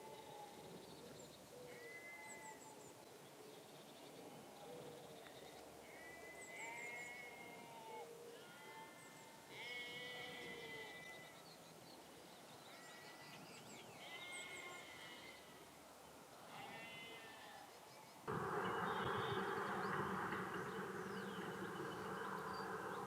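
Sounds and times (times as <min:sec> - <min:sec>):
faint animal bleating: 0:00.0 - 0:00.6, 0:01.7 - 0:02.6, 0:05.8 - 0:11.4, 0:12.6 - 0:15.6, 0:16.4 - 0:17.7.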